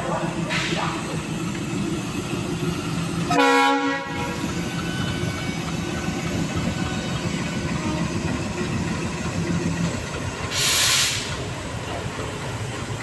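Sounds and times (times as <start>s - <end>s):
diesel locomotive engine rumble: 0.0s - 13.0s
locomotive horn blast: 3.3s - 5.3s.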